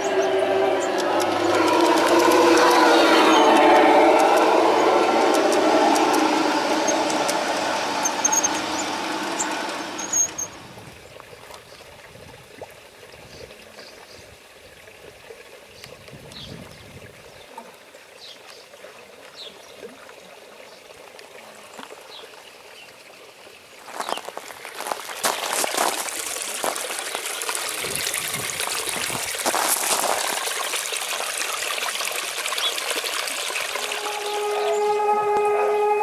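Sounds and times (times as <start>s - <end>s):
rushing hiss: 0.0s - 11.0s, 24.0s - 31.6s.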